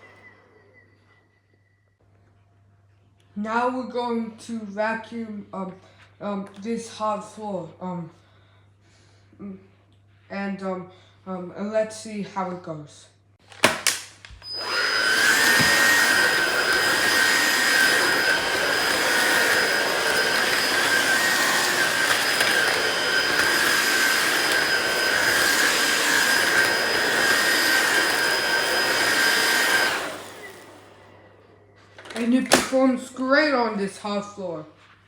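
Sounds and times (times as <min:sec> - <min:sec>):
vacuum cleaner motor whine: 0:00.0 - 0:01.6, 0:14.3 - 0:32.9.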